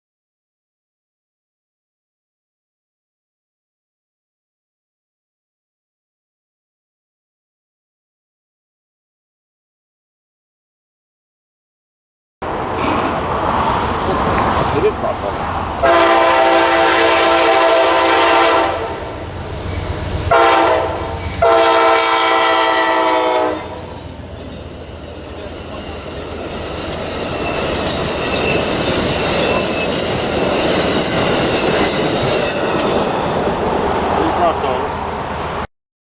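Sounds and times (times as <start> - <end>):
wheels clicking over rail joints: 12.4 - 16.5, 23.8 - 35.6
train rumble passing: 12.4 - 35.7
train air horn blasts: 15.8 - 19.2, 19.8 - 24.0.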